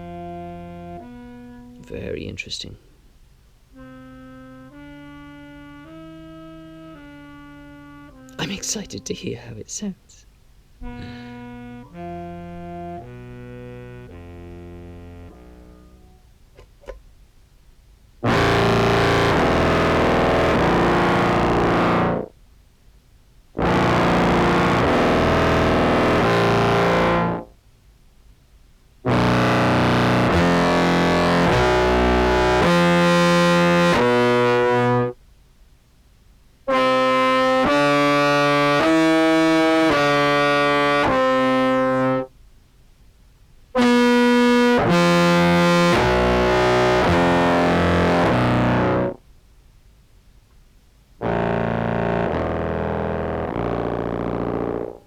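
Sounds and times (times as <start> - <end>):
distorted clarinet: 0.0 - 2.2, 3.7 - 9.5, 10.8 - 17.0, 18.2 - 22.3, 23.6 - 27.5, 29.0 - 35.2, 36.7 - 42.3, 43.8 - 49.2, 51.2 - 55.0.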